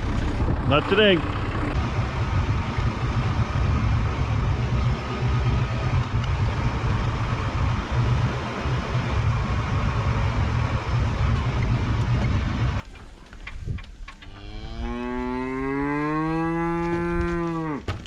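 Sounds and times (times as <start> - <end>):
tractor engine running: 0.0 - 14.6
cow mooing: 14.3 - 17.9.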